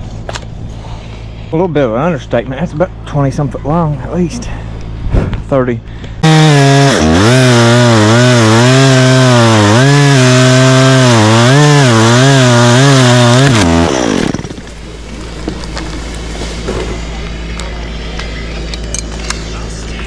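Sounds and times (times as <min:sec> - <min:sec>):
chainsaw cutting wood: 0:06.2 - 0:14.8.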